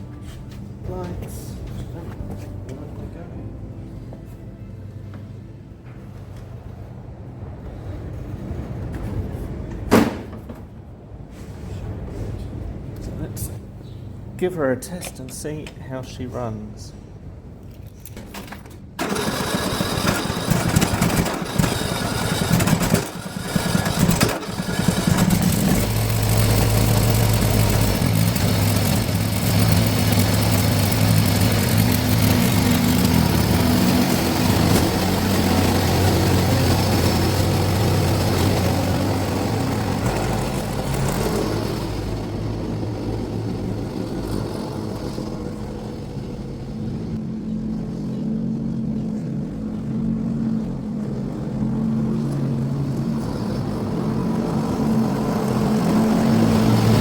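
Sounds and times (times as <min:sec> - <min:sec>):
lawn mower engine starting and running: 0:18.2 - 0:47.2, 0:51.1 - 0:57.0.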